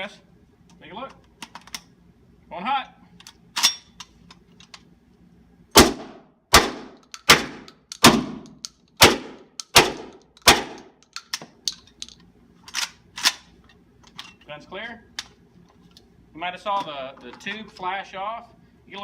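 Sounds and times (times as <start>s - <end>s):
suppressed shotgun shots: 5.8s - 10.9s
small clicks and knocks: 7.0s - 9.0s, 9.6s - 13.4s.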